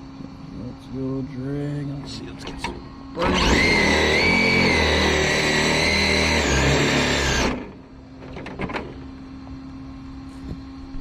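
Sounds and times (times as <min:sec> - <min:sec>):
electric motor whining: 0:03.1 - 0:07.8.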